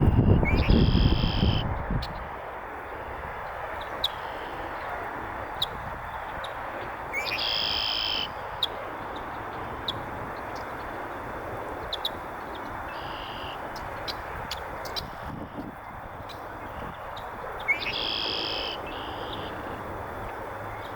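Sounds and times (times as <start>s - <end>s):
blackbird buzzy trilled song: 0.1s - 1.6s, 17.6s - 19.6s
steady background hiss: 1.2s - 20.9s.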